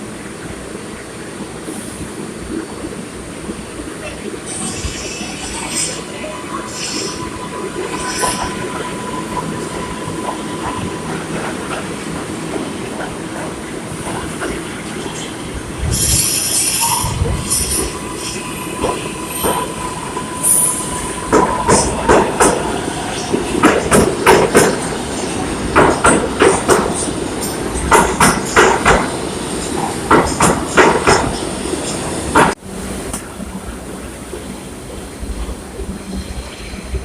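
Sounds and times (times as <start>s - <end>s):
subway train rumbling on rails: 0.0s - 37.0s
wheels clacking over rail joints: 21.2s - 31.4s.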